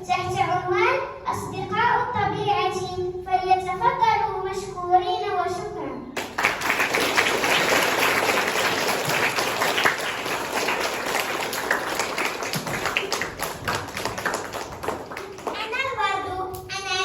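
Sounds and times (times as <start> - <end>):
audience applauding: 6.2 - 15.8.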